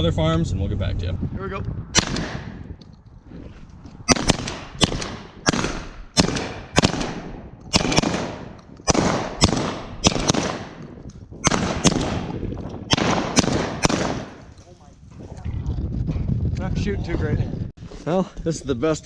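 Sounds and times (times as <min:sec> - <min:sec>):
shotgun shots echoing: 0:02.0 - 0:02.6, 0:04.1 - 0:14.5.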